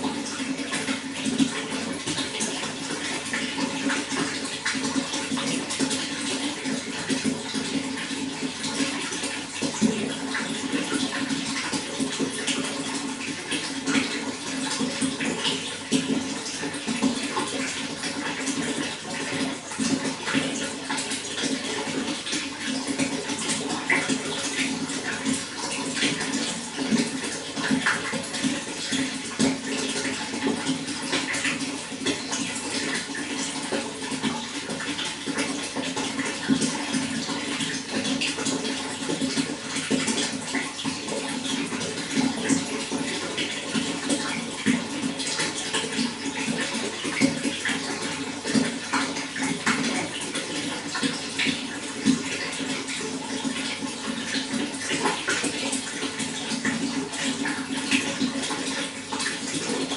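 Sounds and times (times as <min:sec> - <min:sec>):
running water splashing: 0:00.0 - 0:59.9.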